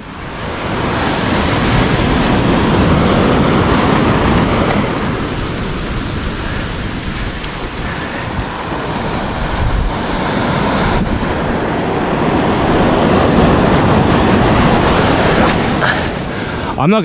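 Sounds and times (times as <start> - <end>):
surf breaking on beach: 0.0 - 17.0.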